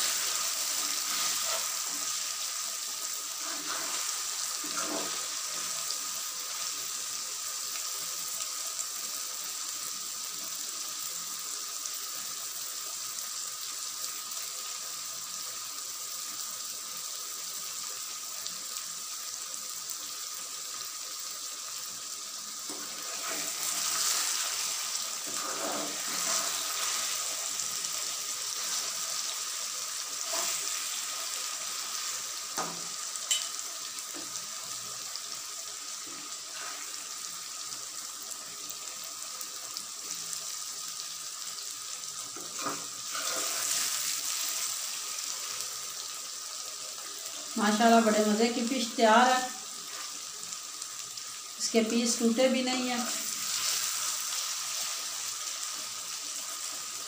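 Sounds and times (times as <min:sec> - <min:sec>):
curry sizzling in a pan: 0:00.0 - 0:57.0
metal spoon stirring and clinking: 0:33.3 - 0:33.6.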